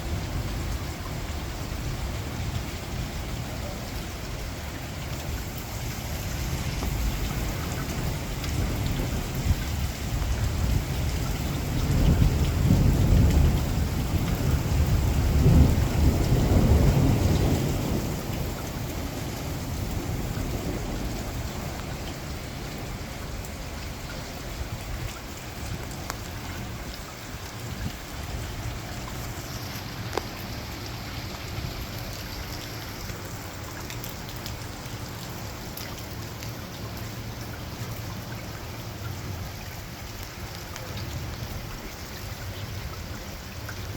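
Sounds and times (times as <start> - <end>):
heavy rain: 0.0 - 43.9
rolling thunder: 6.2 - 23.3.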